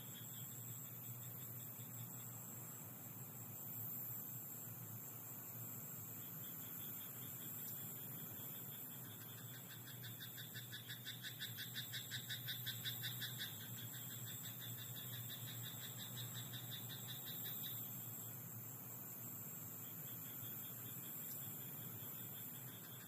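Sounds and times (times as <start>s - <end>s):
frog croaking: 9.0s - 17.9s, 22.1s - 23.0s.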